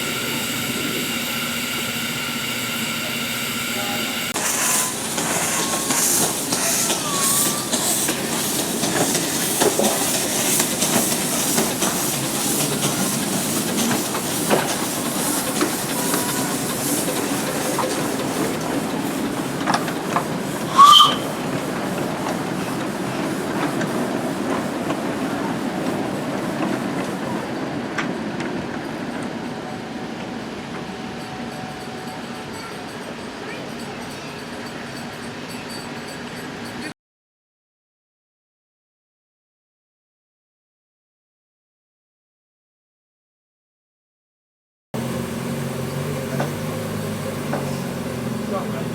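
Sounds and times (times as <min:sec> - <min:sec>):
miniature train running: 0:00.0 - 0:36.9, 0:45.0 - 0:48.9
train whistle blast: 0:03.2 - 0:08.1, 0:20.6 - 0:21.6.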